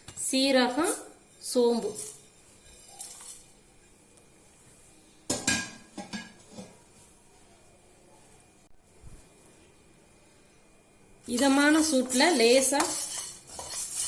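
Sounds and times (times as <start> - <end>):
utensils clinking against a pan: 11.3 - 14.0.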